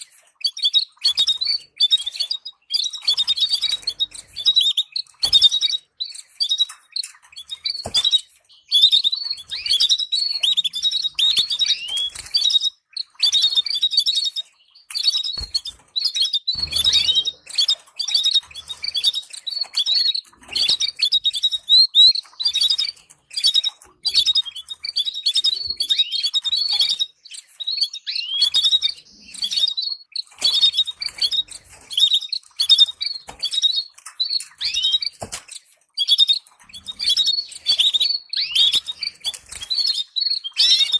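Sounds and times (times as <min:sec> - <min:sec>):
canary singing: 0:00.0 - 0:40.9.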